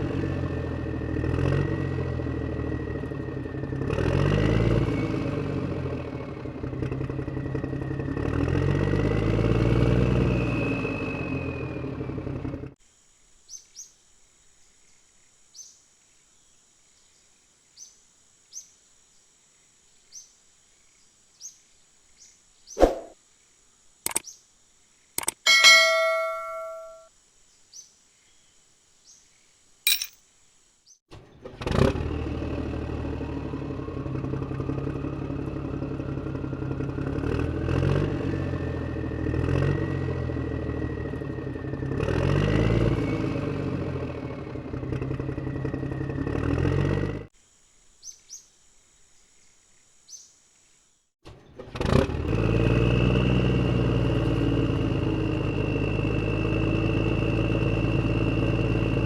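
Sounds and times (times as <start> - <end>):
mini tractor motor rumbling: 0.0 - 12.8, 31.1 - 47.3, 51.3 - 59.0.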